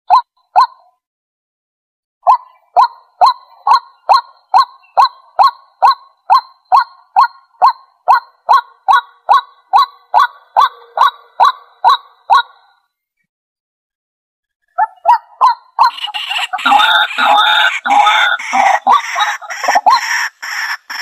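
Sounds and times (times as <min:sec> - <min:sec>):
waterhen calling: 0:15.8 - 0:21.0.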